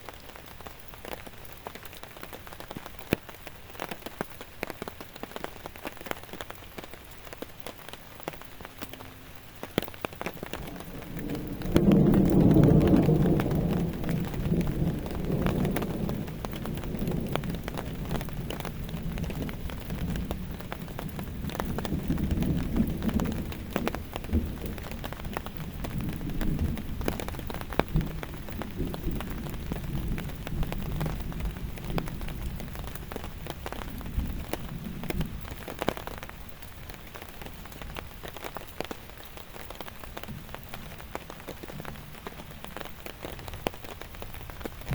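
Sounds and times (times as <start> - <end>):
rain drops ticking: 0.0 - 44.9
thunder rumbling: 8.7 - 38.6, 39.8 - 44.9.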